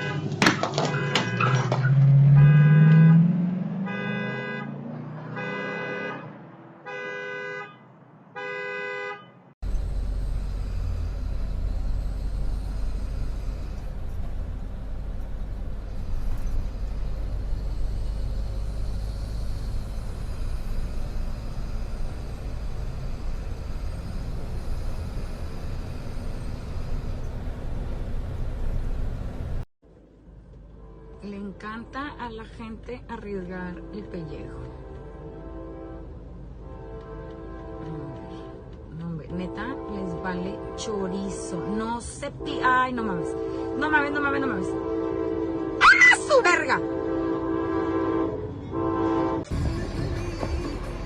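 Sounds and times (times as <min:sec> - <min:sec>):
car driving rumble: 0:00.0 - 0:05.6, 0:09.6 - 0:31.2
car horn honking: 0:00.0 - 0:09.5, 0:33.8 - 0:38.6, 0:39.5 - 0:49.6
car engine revving: 0:01.0 - 0:05.8.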